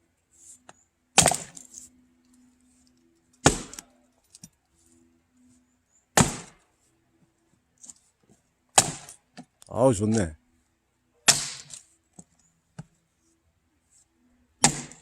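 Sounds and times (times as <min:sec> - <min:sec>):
axe splitting firewood: 0:01.1 - 0:01.8, 0:03.4 - 0:03.9, 0:06.1 - 0:06.6, 0:08.7 - 0:09.6, 0:11.2 - 0:12.9, 0:14.6 - 0:15.0.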